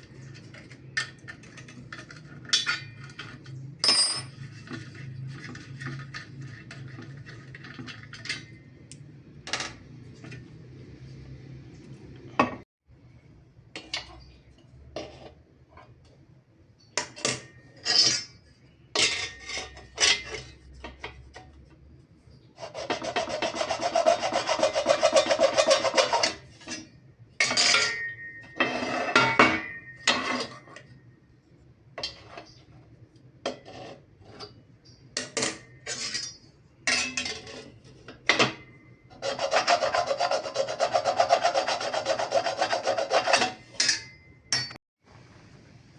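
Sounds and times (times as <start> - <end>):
rasping of file or saw: 22.6 - 26.5, 39.2 - 43.6.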